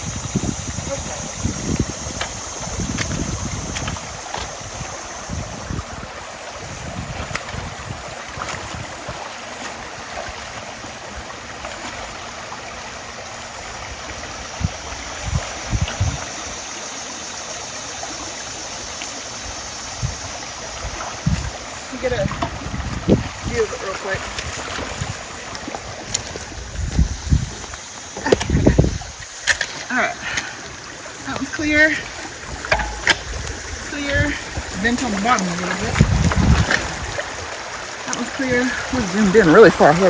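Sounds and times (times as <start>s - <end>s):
creek water running: 0.0s - 40.0s
low thumps: 32.6s - 33.8s.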